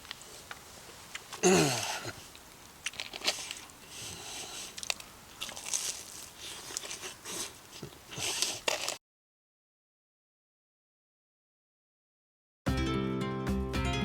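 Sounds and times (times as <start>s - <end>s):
person chewing food: 2.1s - 9.0s
crunchy batter clicks: 4.6s - 9.0s.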